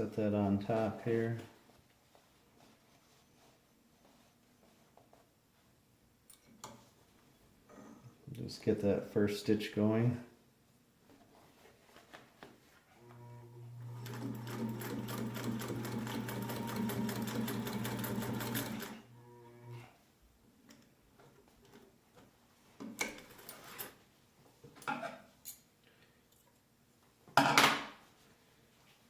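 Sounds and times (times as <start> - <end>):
sewing machine stitching: 13.9 - 19.0.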